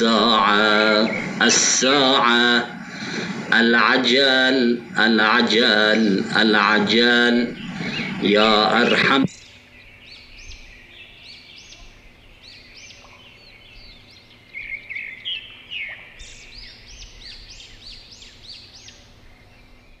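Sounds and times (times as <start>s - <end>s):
small songbirds chirping: 0.0s - 20.0s.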